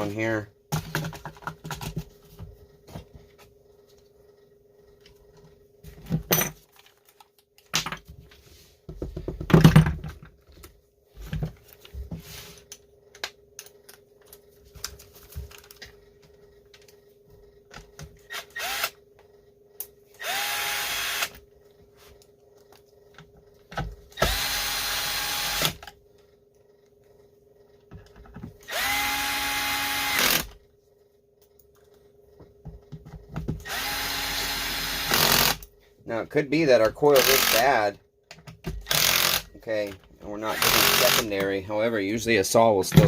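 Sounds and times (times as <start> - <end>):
tools and parts clattering: 0.7 - 3.4, 5.9 - 12.1
power drill whining: 18.3 - 19.0, 20.2 - 21.4, 24.2 - 25.9, 28.6 - 30.6, 33.6 - 35.6, 37.2 - 37.7, 38.8 - 39.5, 40.4 - 41.3.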